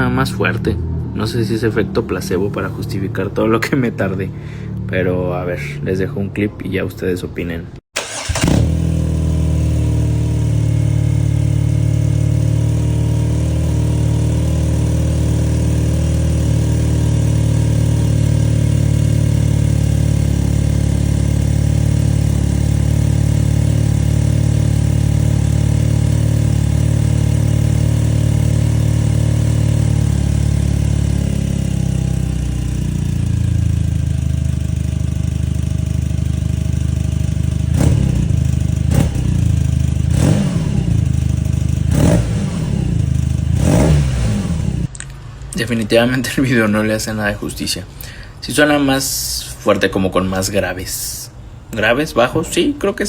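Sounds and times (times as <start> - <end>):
motorcycle engine idling: 8.0 - 44.9.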